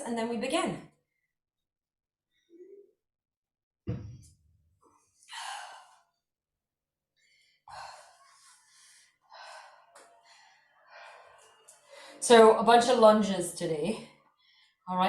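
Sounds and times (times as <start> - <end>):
woman breathing hard: 7.2 - 12.2.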